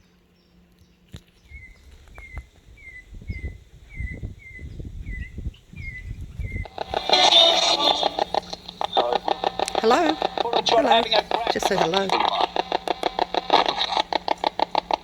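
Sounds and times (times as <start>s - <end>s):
bird chirping: 0.0s - 15.0s
crackling noise with fast ticks: 0.7s - 2.7s, 6.2s - 15.0s
low rumbling on microphone: 1.4s - 11.6s.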